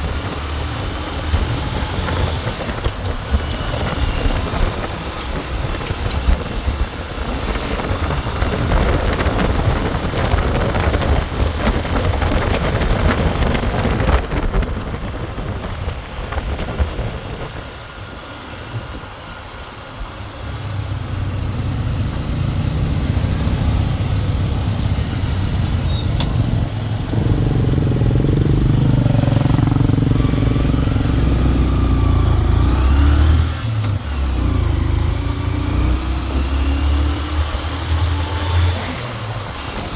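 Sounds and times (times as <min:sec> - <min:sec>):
vehicle engine revving: 0:20.2 - 0:39.9.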